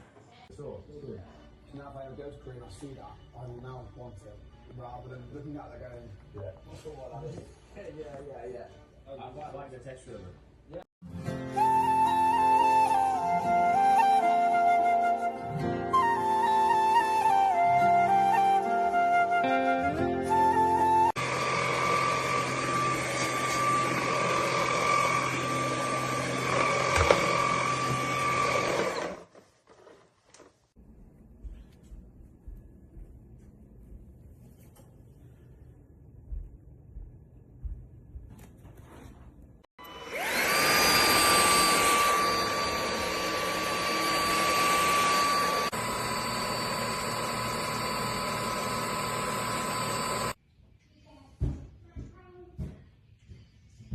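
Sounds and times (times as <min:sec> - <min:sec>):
vacuum motor whine: 0:11.6 - 0:15.3, 0:15.9 - 0:19.3, 0:20.2 - 0:29.2, 0:39.8 - 0:50.4.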